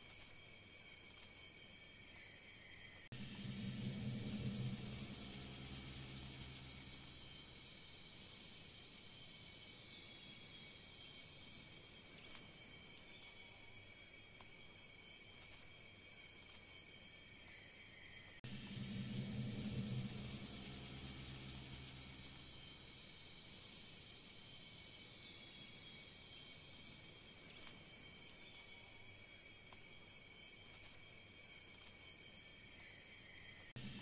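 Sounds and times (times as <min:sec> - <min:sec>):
insects trilling: 0:00.0 - 0:34.0
low hum: 0:03.1 - 0:08.5, 0:18.4 - 0:23.2.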